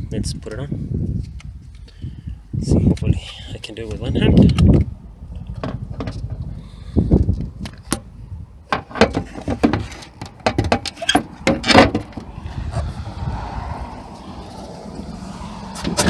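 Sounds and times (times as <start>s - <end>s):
wind rumbling on microphone: 0.0s - 10.3s, 11.3s - 16.0s.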